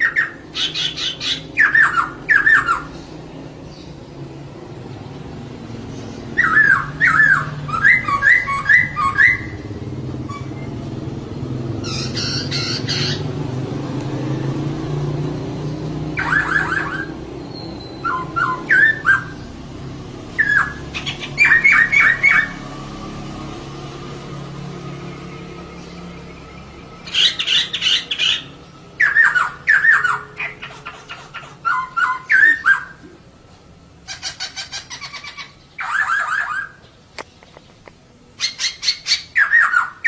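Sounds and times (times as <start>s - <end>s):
bird squawking: 0.0s - 3.1s, 6.1s - 10.7s, 11.8s - 13.4s, 16.1s - 19.5s, 20.4s - 22.6s, 27.0s - 33.0s, 34.0s - 36.9s, 38.4s - 40.0s.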